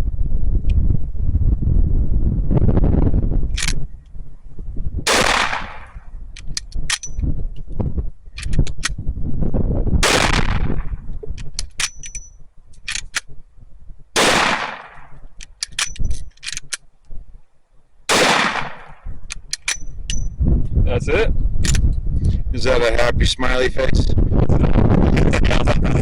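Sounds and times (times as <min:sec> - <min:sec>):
metallic clicks of gun lever: 0:03.5 - 0:03.8, 0:06.4 - 0:07.8, 0:08.4 - 0:09.0, 0:11.2 - 0:13.3, 0:15.2 - 0:17.2, 0:19.2 - 0:20.4, 0:21.6 - 0:22.0
gunshots: 0:05.1 - 0:06.0, 0:10.0 - 0:10.9, 0:14.2 - 0:15.2, 0:18.1 - 0:19.1.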